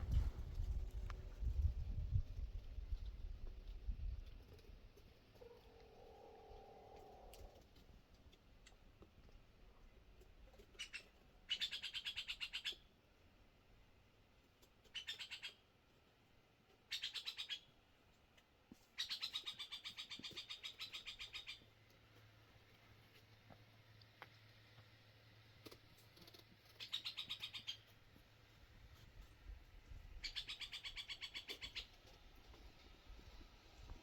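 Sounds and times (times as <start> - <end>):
bird singing rattling trills: 26.8 - 27.8.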